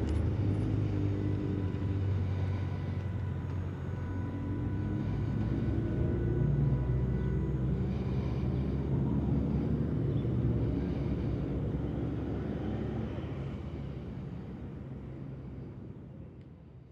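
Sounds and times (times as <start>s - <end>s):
faint high whine: 0.0s - 16.9s
low rumble of traffic: 0.0s - 16.9s.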